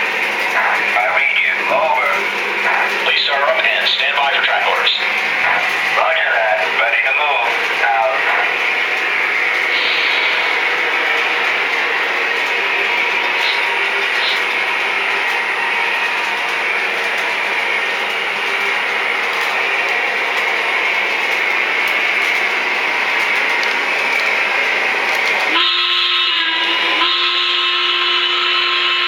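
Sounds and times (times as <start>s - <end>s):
model locomotive hiss: 6.1s - 15.8s.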